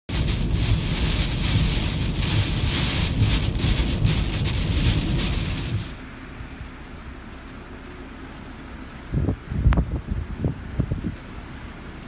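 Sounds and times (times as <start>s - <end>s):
heavy rain: 0.0s - 6.0s
strong wind gusts: 0.1s - 6.0s, 9.1s - 11.2s
wind buffeting microphone: 0.1s - 6.0s, 9.1s - 11.2s.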